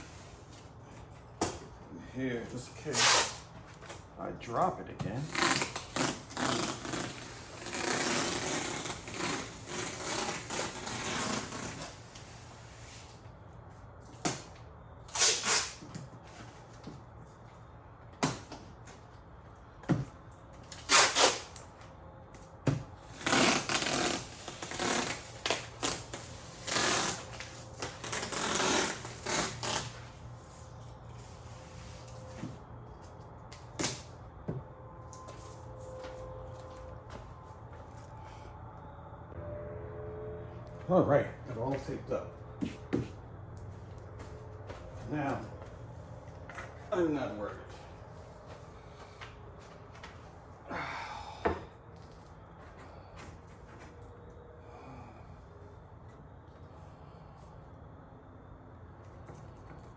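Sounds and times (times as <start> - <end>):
tape ripping off roll: 2.9 - 4.0, 5.2 - 12.4, 15.1 - 16.0, 20.7 - 21.8, 23.0 - 30.2, 33.6 - 34.1.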